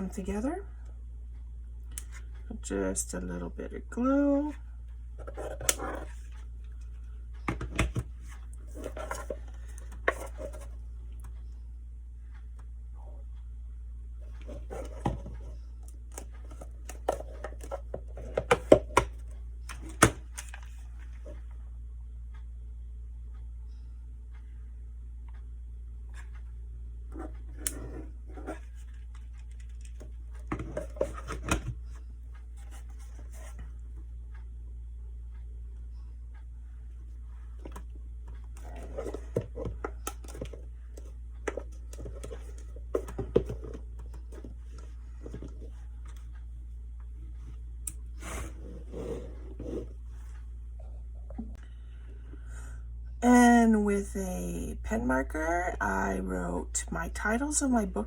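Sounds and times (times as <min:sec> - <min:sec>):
low hum: 0:00.0 - 0:58.0
small clicks taps and scrapes: 0:27.1 - 0:34.4.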